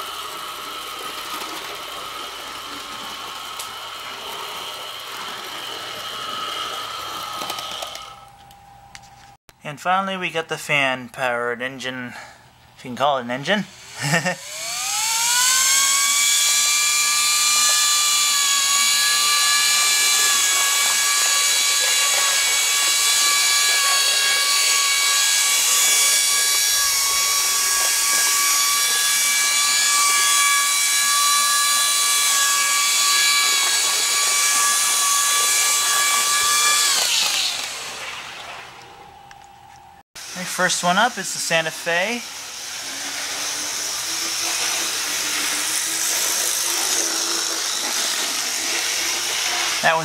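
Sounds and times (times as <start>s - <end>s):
small electric fan motor whine: 0.0s - 9.4s, 13.7s - 40.4s.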